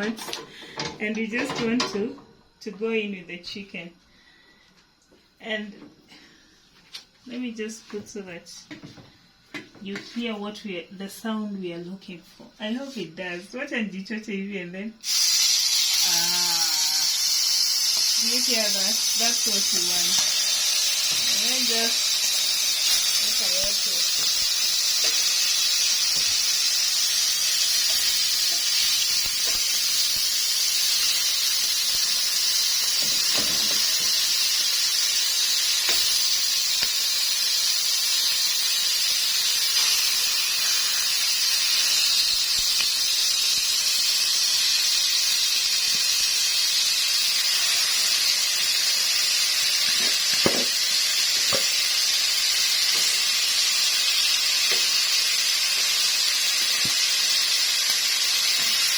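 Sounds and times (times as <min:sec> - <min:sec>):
meat sizzling in a pan: 0:15.0 - 0:58.9.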